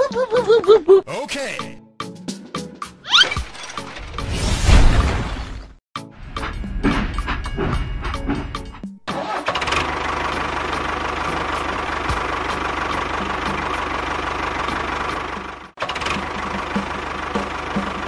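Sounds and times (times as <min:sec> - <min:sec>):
engine running: 0:06.3 - 0:18.0.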